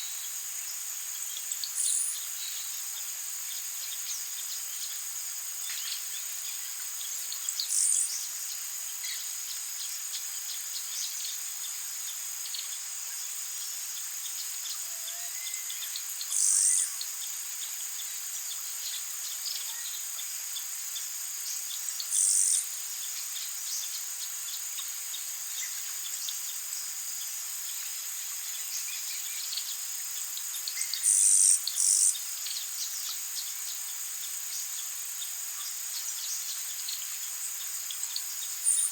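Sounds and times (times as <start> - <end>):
insects droning: 0.0 - 38.9
faint bird chirps: 37.9 - 38.9.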